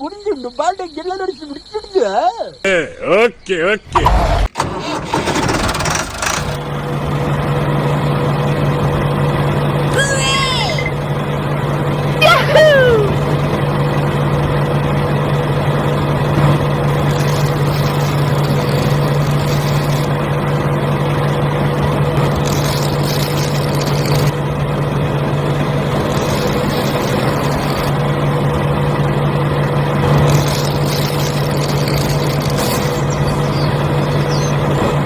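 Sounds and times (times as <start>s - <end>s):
small electric motor humming: 16.6s - 24.4s, 25.4s - 29.0s, 30.0s - 34.6s.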